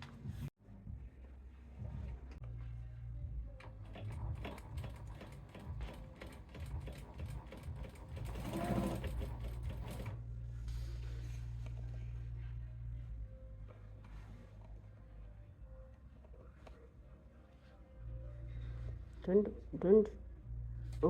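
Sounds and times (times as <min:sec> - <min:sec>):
sewing machine low hum: 0:03.5 - 0:10.3
sewing machine needle clicks: 0:03.8 - 0:10.1.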